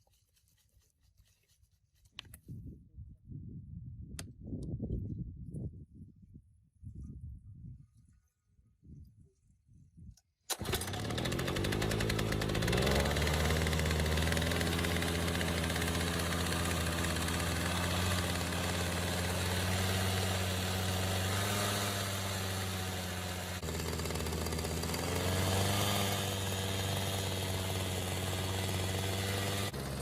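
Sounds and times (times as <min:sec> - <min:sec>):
compactor engine starting: 0:10.5 - 0:30.0.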